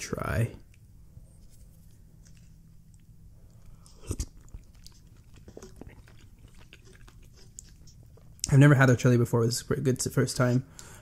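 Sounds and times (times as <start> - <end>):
quiet chewing with clicks: 0.6 - 8.6.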